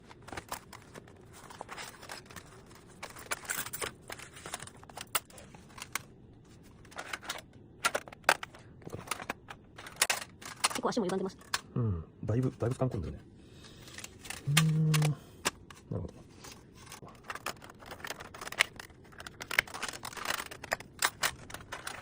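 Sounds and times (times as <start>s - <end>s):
packaging crinkling and rustling: 0.0s - 11.6s, 12.4s - 22.0s.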